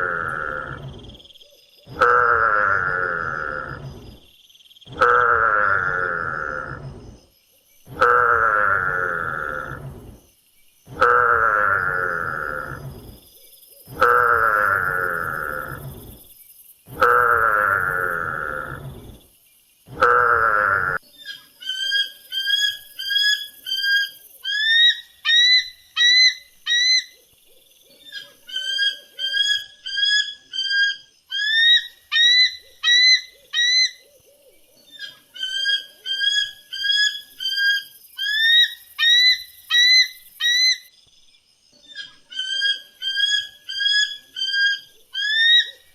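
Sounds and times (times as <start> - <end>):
long loud animal call: 0.0 - 1.2, 1.9 - 3.9, 4.9 - 7.0, 7.9 - 9.9, 10.9 - 12.9, 13.9 - 16.1, 16.9 - 19.1, 19.9 - 21.0.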